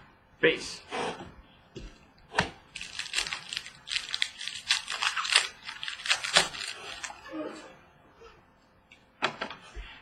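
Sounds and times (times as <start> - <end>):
foil wrapper crinkling and tearing: 2.7 - 7.3.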